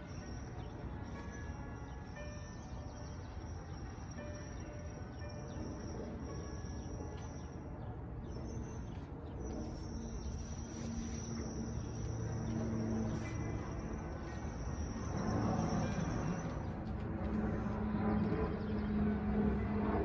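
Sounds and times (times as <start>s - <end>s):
high-pitched insect trill: 9.8s - 16.6s.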